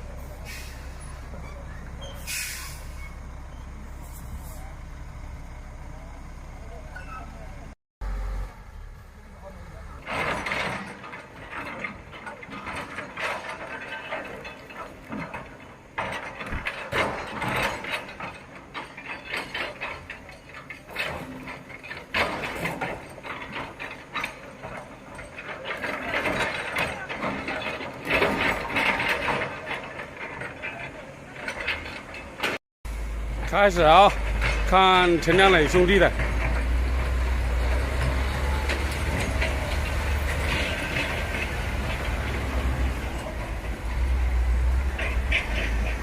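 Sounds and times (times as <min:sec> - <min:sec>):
heavy machinery clattering: 0:09.4 - 0:46.0.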